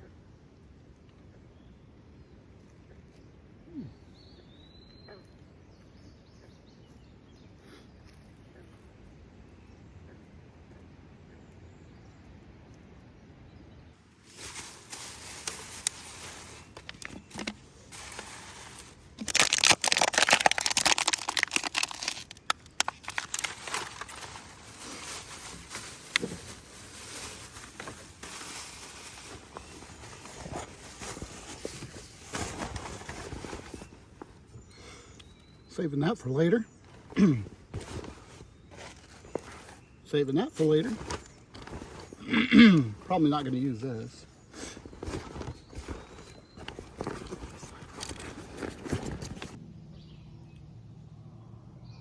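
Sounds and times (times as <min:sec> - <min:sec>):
crinkling handling noise: 0:14.1 - 0:35.5, 0:36.8 - 0:49.6.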